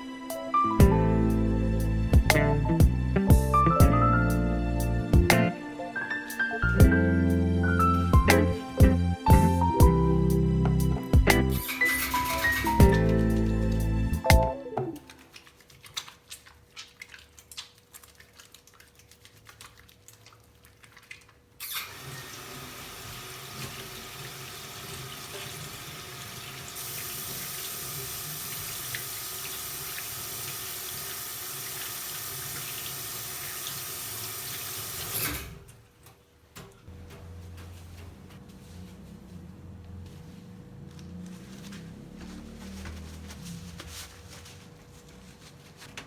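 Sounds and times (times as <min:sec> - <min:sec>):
water tap running into sink: 0:21.6 - 0:35.3.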